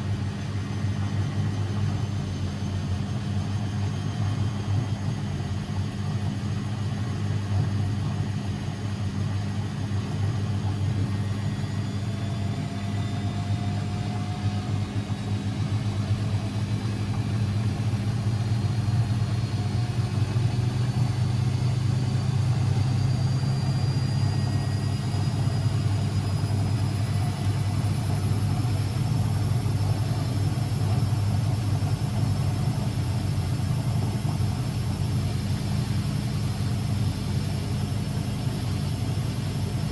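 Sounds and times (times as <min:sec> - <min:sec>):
washing machine motor hum: 0:00.0 - 0:39.9
faint high whine: 0:10.4 - 0:39.9.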